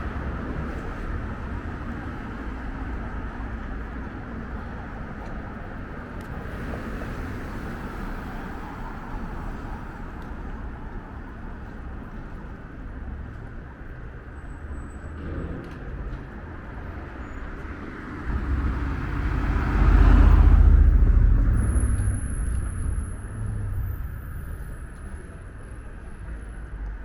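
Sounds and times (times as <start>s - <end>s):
traffic rumble: 0.0s - 27.0s
vehicle passing close by: 18.0s - 25.4s.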